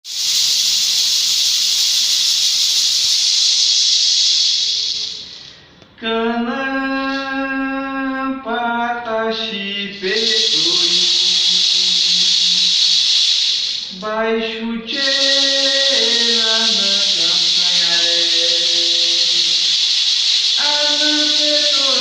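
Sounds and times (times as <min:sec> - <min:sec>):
loud steady hiss: 0:00.0 - 0:06.0, 0:09.3 - 0:22.0
person singing long held notes: 0:09.5 - 0:12.4, 0:14.0 - 0:19.6, 0:20.6 - 0:22.0.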